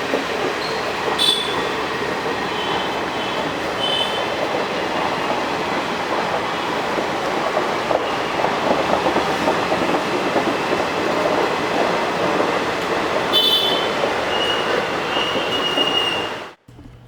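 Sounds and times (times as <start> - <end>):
train wheels clattering: 0.0 - 17.0
train wheel squeal: 0.5 - 4.3, 13.3 - 16.5.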